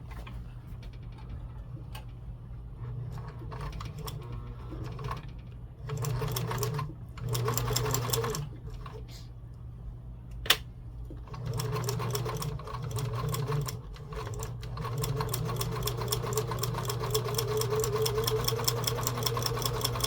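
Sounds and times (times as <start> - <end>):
sewing machine running: 2.8 - 8.9, 11.3 - 20.0.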